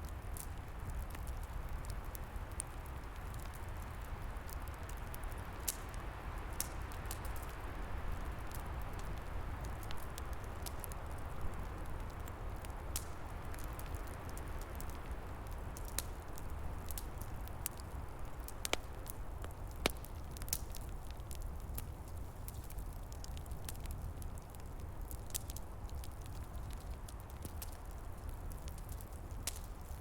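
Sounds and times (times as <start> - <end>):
rushing fire and wind: 0.0 - 30.0
wood fire crackling: 0.0 - 30.0
sharp pops and snaps: 12.1 - 30.0.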